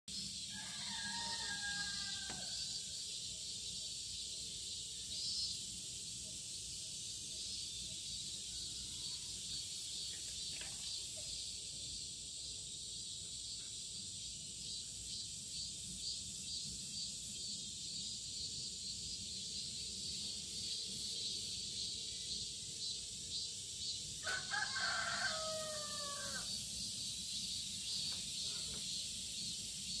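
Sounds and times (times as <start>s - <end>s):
cicadas shrilling: 0.1s - 30.0s
rooster crowing: 0.5s - 2.8s, 24.2s - 26.6s.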